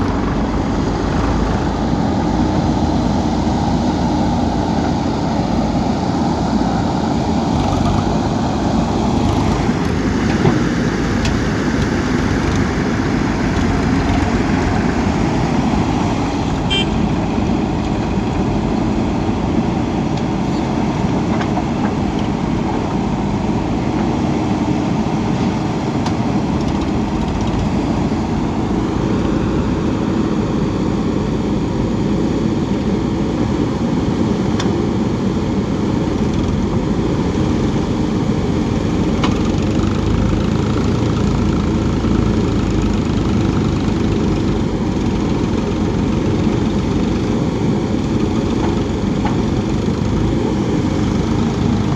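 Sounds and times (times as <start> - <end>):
diesel engine running loudly: 0.0 - 51.9.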